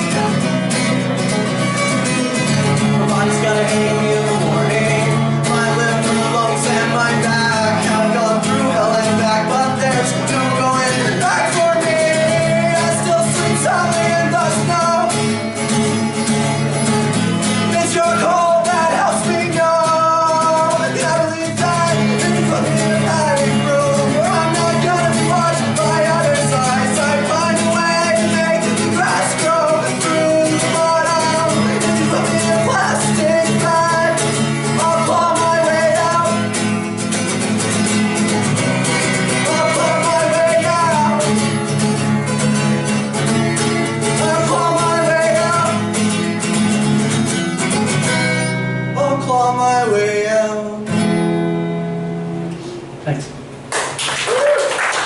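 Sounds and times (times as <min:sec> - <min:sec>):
guitar accompaniment: 0:00.0 - 0:55.0
person singing: 0:02.4 - 0:15.2, 0:17.6 - 0:36.6, 0:39.2 - 0:41.6, 0:44.0 - 0:45.9.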